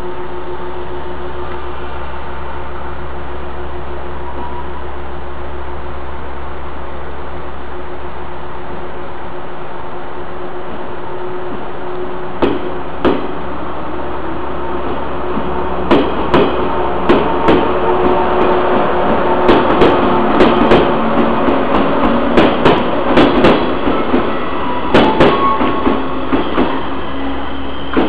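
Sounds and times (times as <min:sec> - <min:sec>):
train running hum: 0:00.0 - 0:28.0
train wheels clacking over rail joints: 0:12.4 - 0:13.4, 0:15.3 - 0:26.9.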